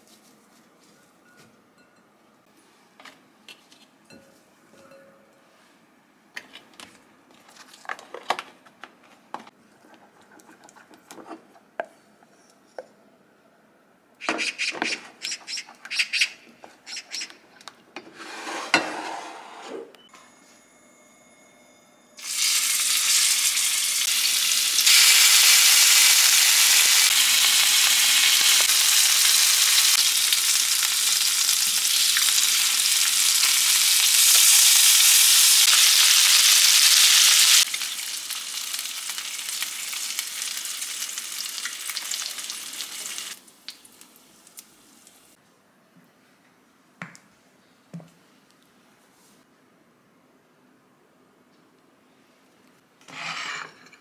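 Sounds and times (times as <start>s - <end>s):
wooden spoon stirring in metal pot: 9.7s - 12.4s
food sizzling on griddle: 22.2s - 43.4s.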